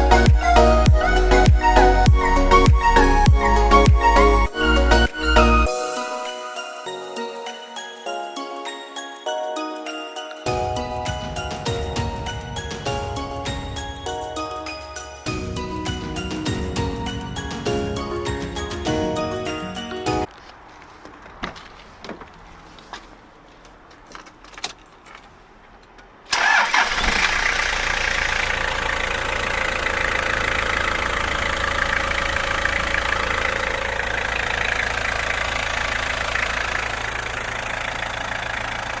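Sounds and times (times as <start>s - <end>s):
diesel engine starting and idling: 26.3s - 39.0s.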